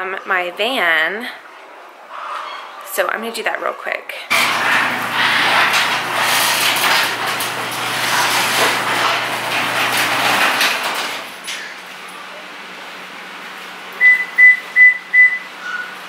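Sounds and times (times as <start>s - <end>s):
motor humming: 4.3s - 11.5s
rushing rattly noise: 4.3s - 11.6s.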